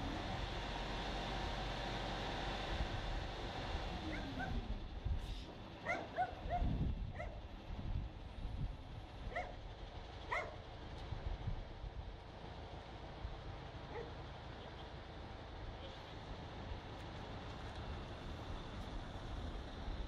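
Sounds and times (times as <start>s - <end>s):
low engine rumble: 0.0s - 20.0s
dog yipping: 5.8s - 7.4s, 9.3s - 9.5s, 10.3s - 10.6s.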